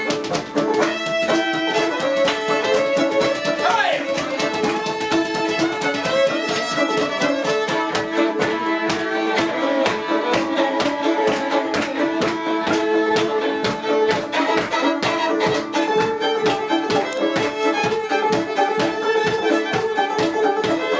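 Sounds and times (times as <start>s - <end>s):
fiddle playing a tune: 0.0s - 20.9s.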